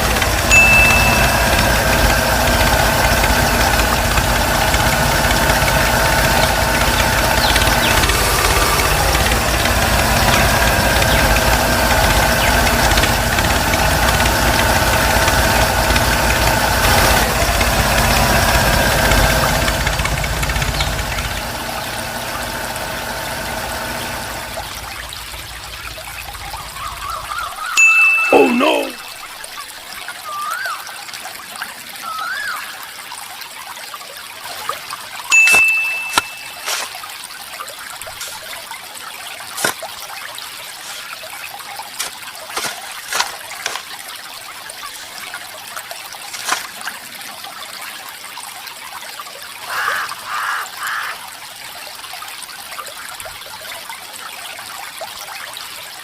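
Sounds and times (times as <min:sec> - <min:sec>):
small motor whining: 0:00.0 - 0:27.0.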